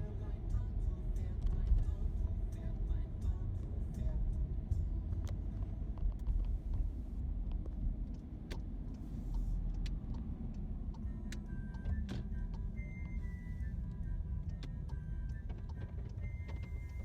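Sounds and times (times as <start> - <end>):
low road rumble: 0.0 - 17.0
faint steady tones: 10.2 - 17.0.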